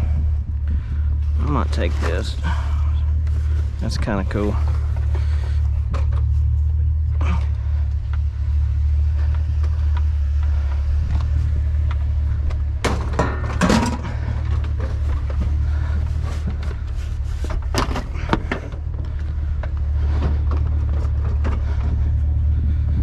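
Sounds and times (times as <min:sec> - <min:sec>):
clunks and rattles: 0:00.0 - 0:23.0
truck engine humming: 0:00.0 - 0:23.0.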